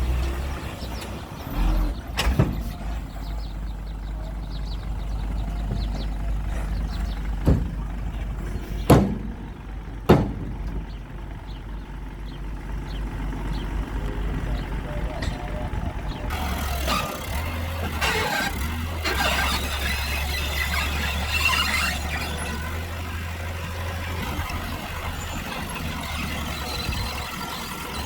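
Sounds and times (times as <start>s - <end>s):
heavy machinery engine running: 0.0s - 28.0s
sharp knocks: 7.4s - 11.1s.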